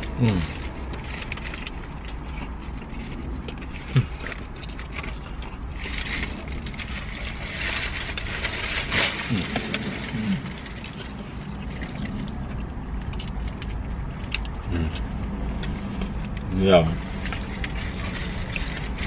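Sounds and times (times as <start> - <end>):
sandwich paper rustling: 0.0 - 14.6, 15.3 - 19.0
chewing and smacking: 0.0 - 19.0
low in-car hum: 0.0 - 19.0
person murmuring: 0.1 - 0.6, 9.2 - 10.5, 14.7 - 15.0.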